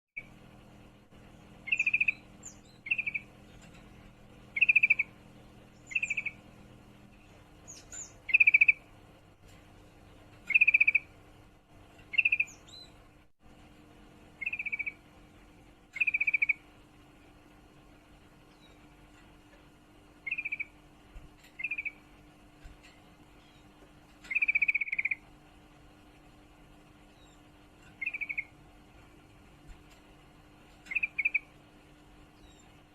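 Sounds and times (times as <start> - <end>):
bird trilling calls: 1.6 - 6.5, 7.2 - 8.9, 10.4 - 11.2, 12.0 - 13.0, 14.3 - 15.1, 15.9 - 16.7, 20.2 - 20.8, 21.4 - 22.1, 22.8 - 25.3, 27.1 - 28.6, 30.7 - 31.6.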